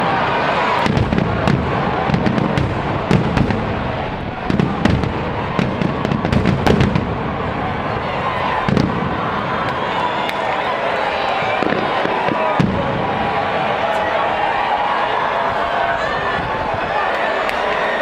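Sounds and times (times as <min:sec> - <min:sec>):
steady background din: 0:00.0 - 0:18.0
fireworks booming: 0:00.1 - 0:10.6, 0:11.3 - 0:14.5
fireworks cracks and crackles: 0:00.8 - 0:14.1.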